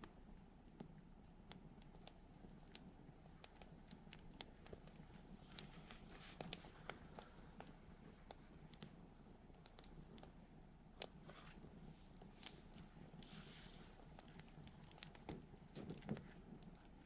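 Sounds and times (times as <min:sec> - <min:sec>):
fire popping and snapping: 0:00.0 - 0:17.0
campfire crackling: 0:00.1 - 0:17.0.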